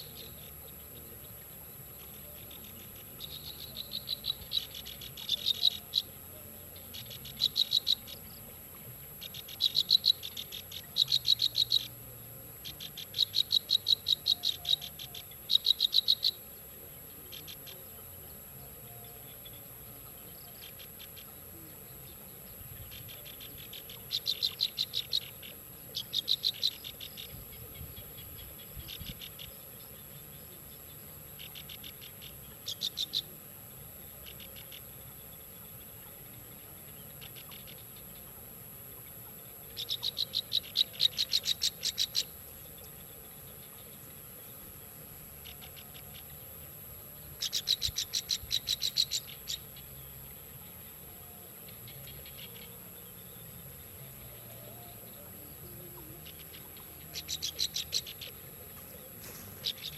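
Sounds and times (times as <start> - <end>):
bird chattering calls: 57.2 - 59.9.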